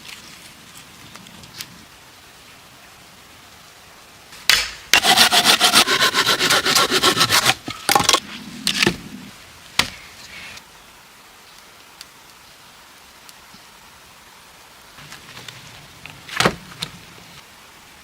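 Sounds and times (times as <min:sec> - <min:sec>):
wood being scraped: 0:05.0 - 0:08.8.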